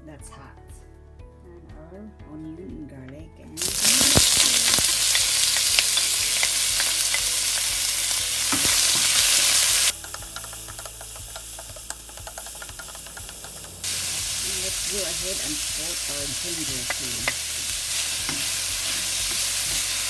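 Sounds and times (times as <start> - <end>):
vegetables sizzling in hot oil: 3.6 - 20.0
spatula ticking against pan: 9.9 - 13.8.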